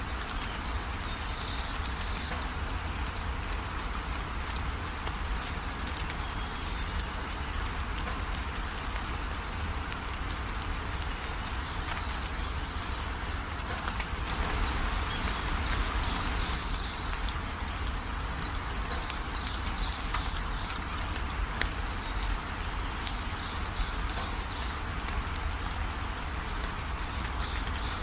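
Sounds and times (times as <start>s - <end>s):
steady rain falling: 0.0s - 28.0s
small birds chirping: 11.0s - 20.8s.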